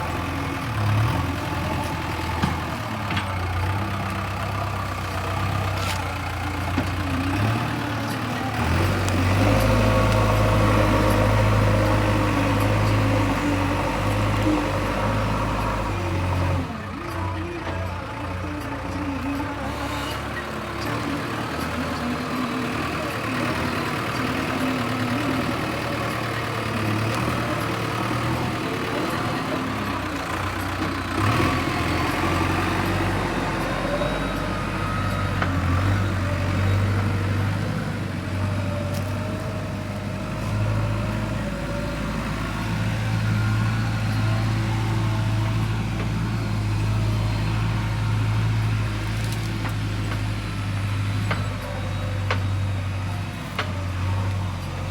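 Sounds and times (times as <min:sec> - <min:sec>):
backhoe diesel engine running: 0:00.0 - 0:54.9.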